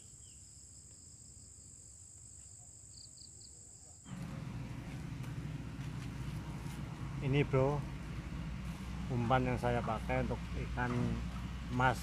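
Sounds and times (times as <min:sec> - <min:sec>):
insect trill: 0:00.0 - 0:04.1
low rumble: 0:04.1 - 0:12.0.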